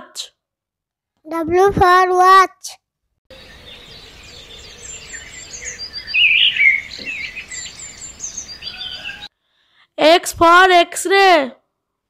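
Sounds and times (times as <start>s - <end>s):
small birds chirping: 3.3s - 9.3s.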